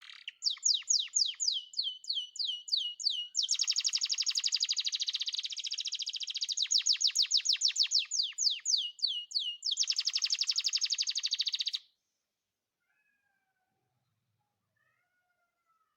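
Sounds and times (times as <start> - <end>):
canary singing: 0.0 - 11.9.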